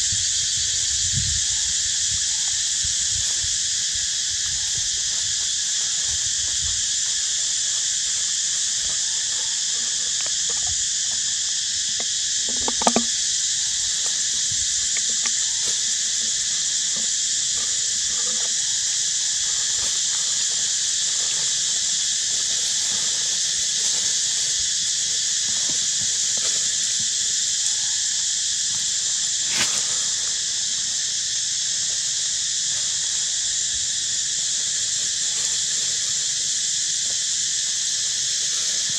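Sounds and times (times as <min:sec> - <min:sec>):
high-pitched insect chorus: 0:00.0 - 0:38.9
short knock: 0:12.5 - 0:13.1.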